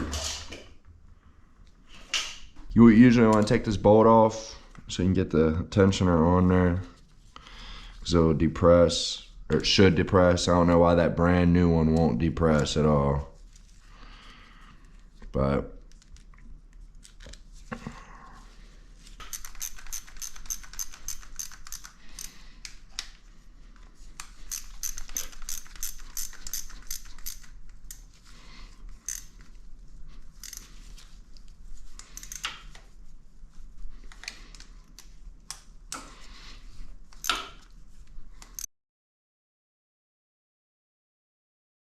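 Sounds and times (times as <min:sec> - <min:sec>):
hand tools clicking and clinking: 0:19.2 - 0:22.4, 0:24.5 - 0:28.0, 0:29.0 - 0:29.3, 0:30.4 - 0:30.7, 0:32.0 - 0:32.6, 0:37.2 - 0:37.6.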